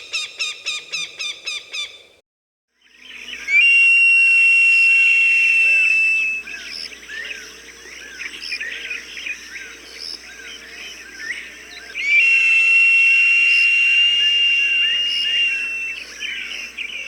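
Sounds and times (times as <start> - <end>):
hawk long shrill scream: 12.0 - 16.0.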